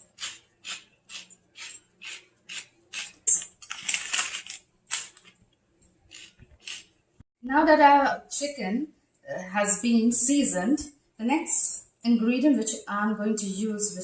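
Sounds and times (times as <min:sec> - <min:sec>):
pepper mill grinding: 0:00.0 - 0:05.4, 0:06.0 - 0:06.9.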